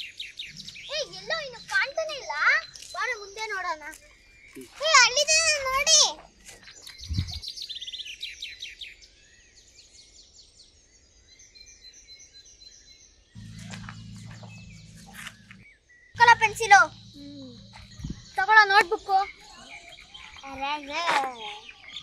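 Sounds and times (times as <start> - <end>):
birds chirping: 0.0 - 22.0
steady low hum: 13.4 - 19.5.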